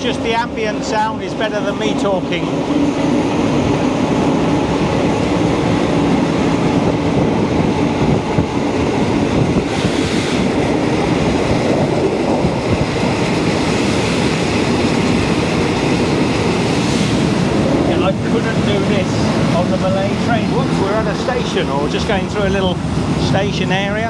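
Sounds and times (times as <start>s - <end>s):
train wheels on rails: 0.0s - 24.0s.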